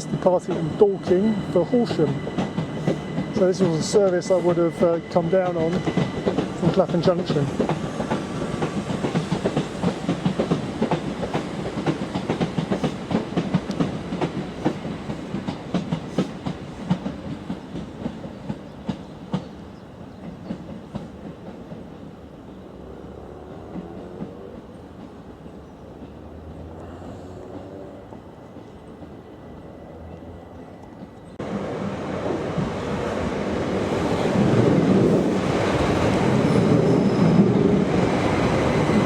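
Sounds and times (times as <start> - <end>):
train wheels clattering over rail joints: 5.6 - 22.1.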